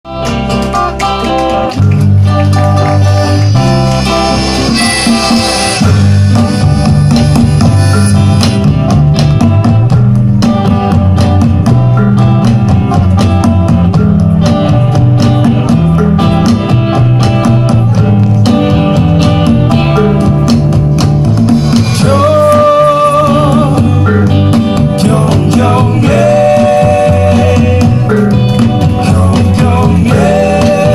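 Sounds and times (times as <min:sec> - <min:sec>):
plucked guitar: 0:00.0 - 0:30.9
drum kit beat: 0:00.1 - 0:30.9
live band playing: 0:00.1 - 0:30.9
wavering held melody line: 0:02.0 - 0:09.9.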